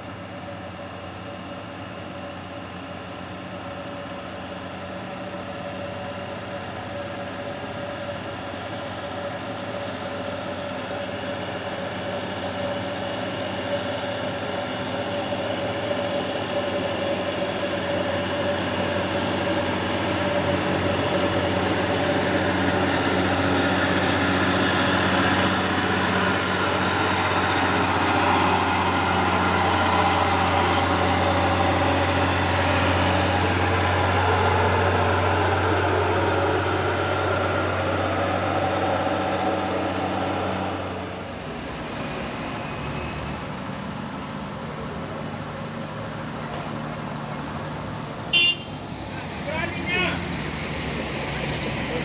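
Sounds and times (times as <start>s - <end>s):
diesel truck engine under load: 15.2s - 52.0s.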